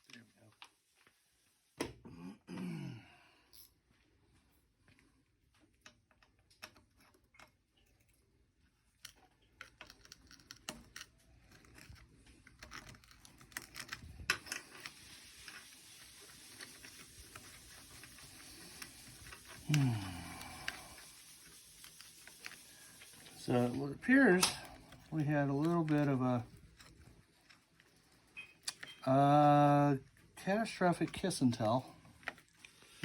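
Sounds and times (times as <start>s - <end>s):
tools and metal parts clinking: 9.0s - 15.6s
faint steady hiss: 13.4s - 33.0s.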